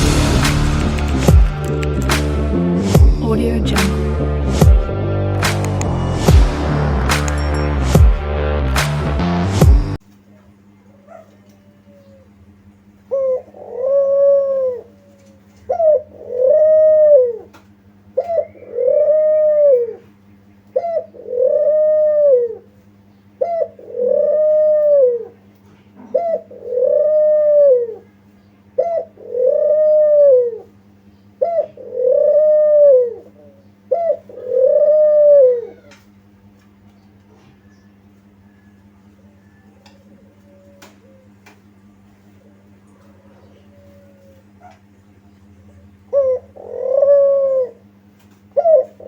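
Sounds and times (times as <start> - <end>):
steady low hum: 0.0 - 49.0
dove cooing: 11.1 - 28.2, 28.8 - 30.8, 31.4 - 36.1, 37.4 - 44.9, 45.6 - 49.0.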